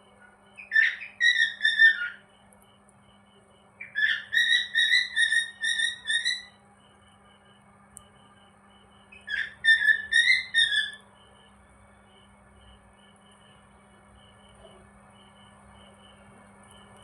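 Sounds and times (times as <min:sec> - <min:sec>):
cockatiel whistling: 0:00.6 - 0:02.2, 0:03.8 - 0:06.6, 0:09.2 - 0:11.0.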